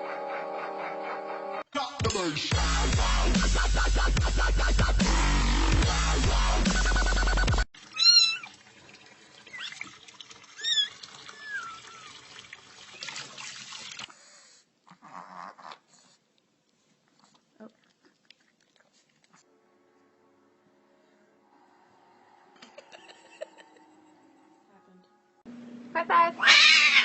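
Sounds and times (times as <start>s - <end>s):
electronic music: 1.8s - 7.6s
cat meowing: 8.0s - 8.5s, 26.4s - 27.0s.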